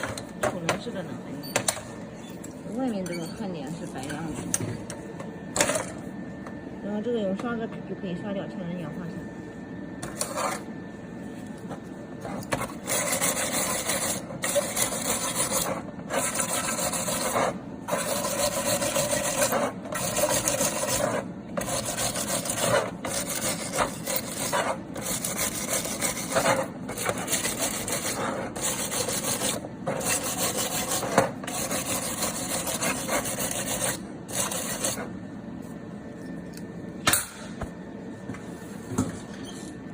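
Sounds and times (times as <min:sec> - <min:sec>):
brush scrubbing metal: 0:12.8 - 0:35.1.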